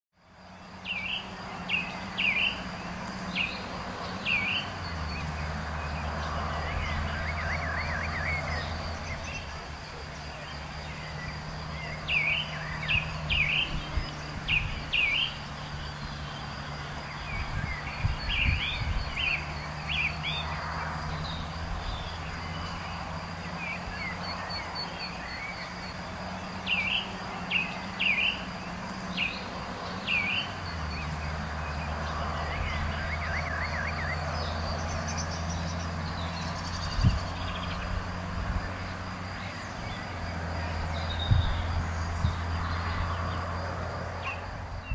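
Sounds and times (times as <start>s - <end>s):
bird singing sweeping chirps: 0.5s - 43.6s.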